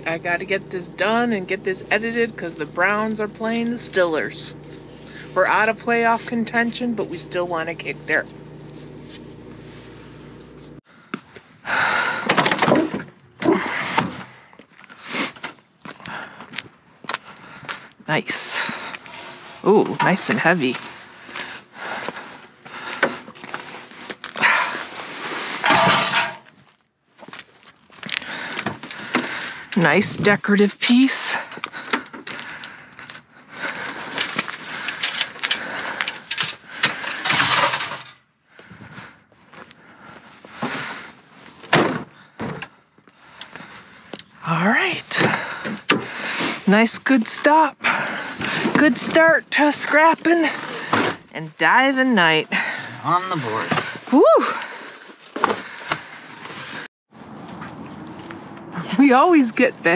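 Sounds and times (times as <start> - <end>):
engine-like hum: 0.0 - 14.5, 17.2 - 26.5, 28.2 - 59.9
objects clattering and knocking: 12.2 - 15.6, 25.4 - 26.7, 33.8 - 38.3
items rustling and clattering: 18.5 - 29.5, 31.5 - 42.8, 50.1 - 51.3, 53.5 - 56.9.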